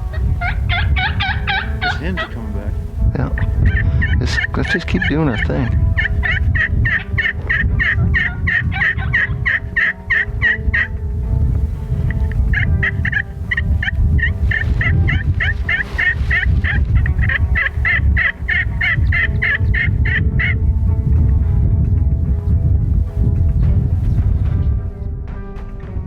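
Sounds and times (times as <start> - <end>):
wild turkeys calling: 0.0 - 11.0, 11.6 - 20.6.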